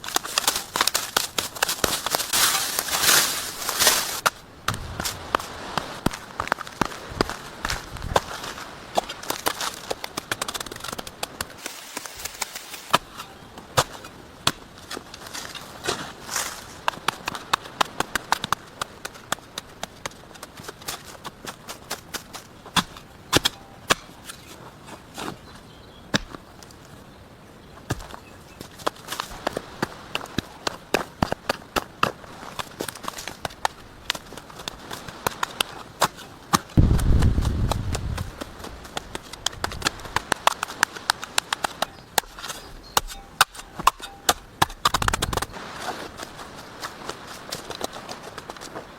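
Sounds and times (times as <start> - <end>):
sharp snaps and knocks: 0.0 - 8.4, 9.0 - 16.0, 16.7 - 24.5, 26.1 - 26.8, 27.9 - 45.6
leaves crunching: 0.0 - 18.0, 32.2 - 42.7
dry twigs cracking: 0.0 - 24.7, 28.6 - 48.9
dull thuds: 36.7 - 40.3.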